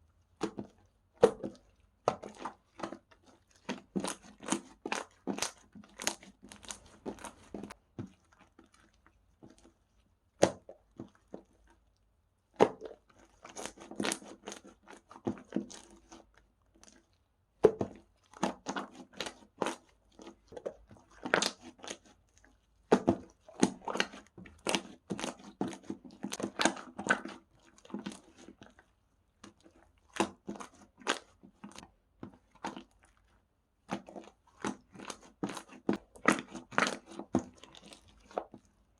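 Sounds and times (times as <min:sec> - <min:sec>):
slime squished by hand: 0:00.3 - 0:11.8, 0:12.5 - 0:38.9.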